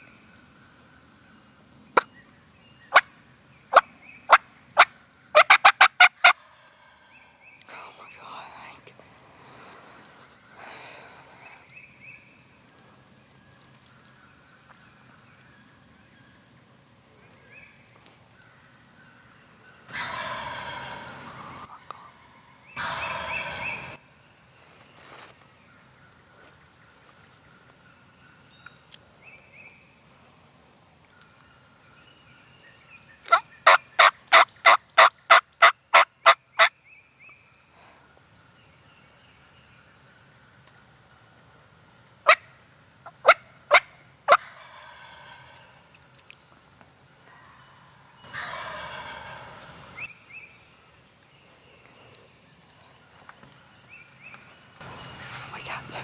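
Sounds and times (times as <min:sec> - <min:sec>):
turkey gobbling: 0:03.7 - 0:06.9, 0:19.9 - 0:24.0, 0:33.3 - 0:36.4, 0:43.0 - 0:45.8, 0:47.3 - 0:50.1
loud short turkey calls: 0:19.9 - 0:21.2, 0:22.8 - 0:24.0, 0:48.3 - 0:49.7
faint scattered calls: 0:19.9 - 0:24.0, 0:47.2 - 0:50.1, 0:54.8 - 0:56.0.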